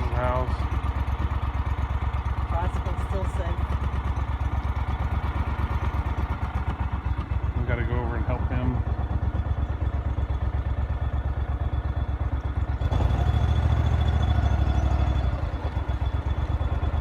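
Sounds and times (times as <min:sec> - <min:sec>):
vehicle engine pulsing: 0:00.0 - 0:17.0.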